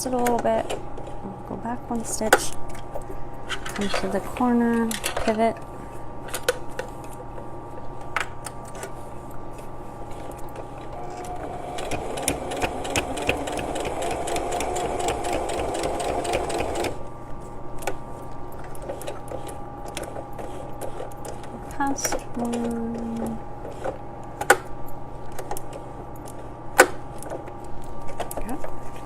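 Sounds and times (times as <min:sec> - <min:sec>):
sewing machine stitching: 0:10.7 - 0:17.0.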